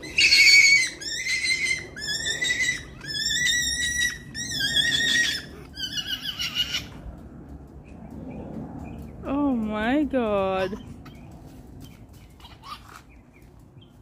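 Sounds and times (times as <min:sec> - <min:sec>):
rabbit screaming: 0:00.0 - 0:07.0.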